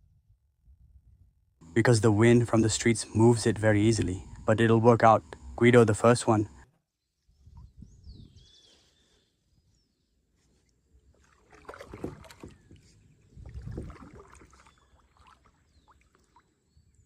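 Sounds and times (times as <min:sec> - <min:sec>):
paddle strokes splashing water: 0:11.1 - 0:16.6.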